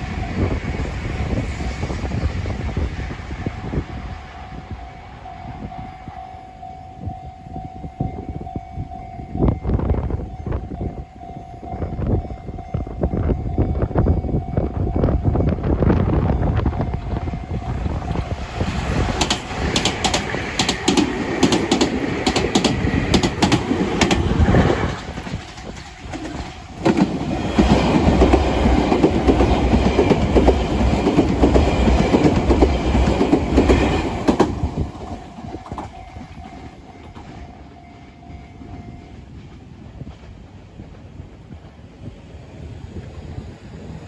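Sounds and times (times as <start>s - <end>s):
train passing with deep rumble: 0.0s - 44.0s
train wheels clattering over rail joints: 17.6s - 37.8s.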